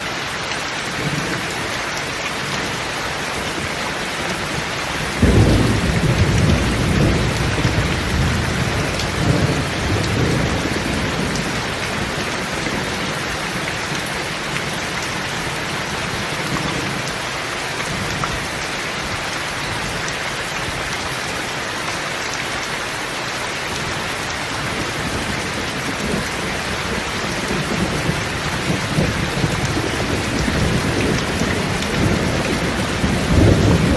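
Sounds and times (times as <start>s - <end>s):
rain on a metal roof: 0.0s - 33.9s
thunder rumbling: 3.5s - 13.2s, 24.6s - 33.9s.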